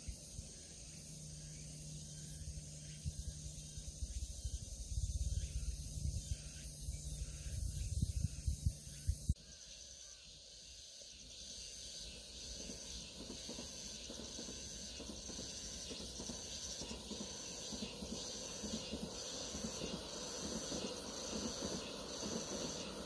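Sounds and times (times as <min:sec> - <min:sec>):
insects buzzing in pulses: 0:00.0 - 0:23.0
distant electric train rumbling: 0:12.0 - 0:23.0.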